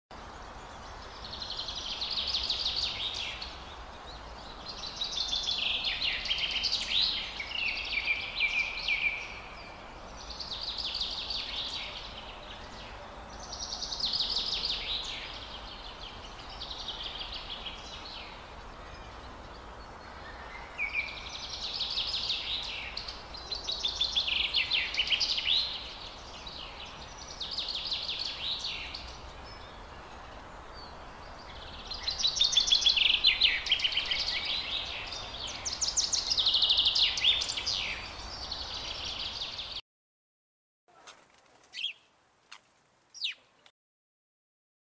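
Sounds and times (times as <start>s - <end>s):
steady background hiss: 0.1s - 39.8s
songbird chattering chirps: 41.7s - 42.1s, 43.2s - 43.6s.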